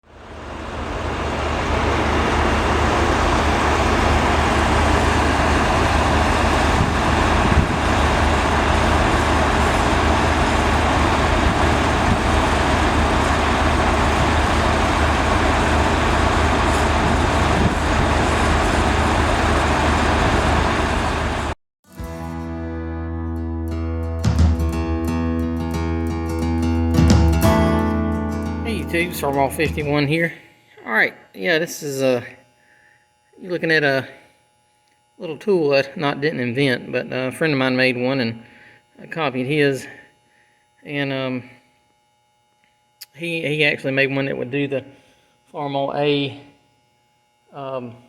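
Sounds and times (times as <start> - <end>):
engine low pulsing rumble: 0.2 - 21.4.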